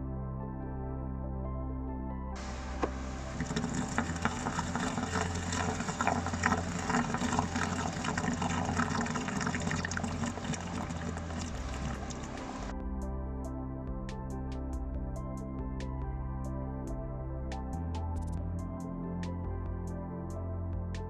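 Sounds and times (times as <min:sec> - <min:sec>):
soft background music: 0:00.0 - 0:21.0
freezer hiss with crackles: 0:02.4 - 0:12.7.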